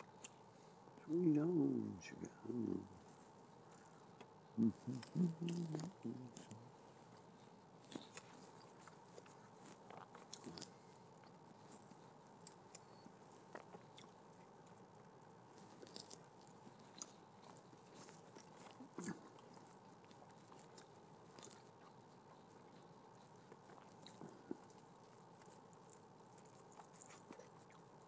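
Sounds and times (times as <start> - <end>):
chewing and biting food: 2.7 - 28.0
mouth clicks and smacks: 3.6 - 6.7.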